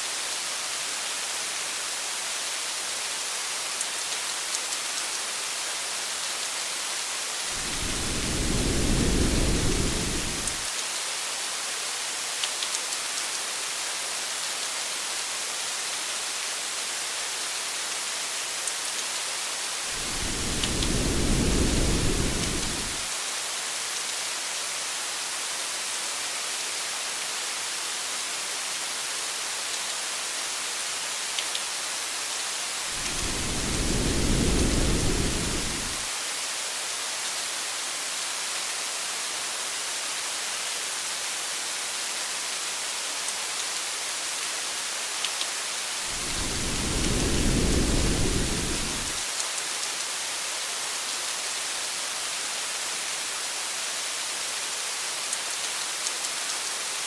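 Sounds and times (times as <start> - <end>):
rain hiss: 0.0 - 57.0
low thunder rolls: 7.6 - 10.6, 19.9 - 23.0, 32.9 - 36.1, 46.1 - 49.2.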